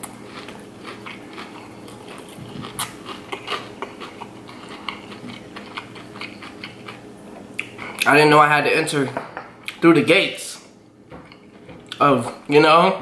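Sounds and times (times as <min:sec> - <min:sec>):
person chewing: 0:00.0 - 0:08.1
low steady hum: 0:00.0 - 0:13.0.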